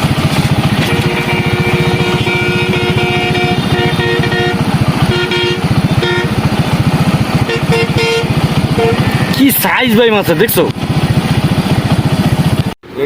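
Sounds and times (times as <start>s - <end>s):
small vehicle engine running: 0.0s - 13.0s
horn honking: 0.7s - 9.4s.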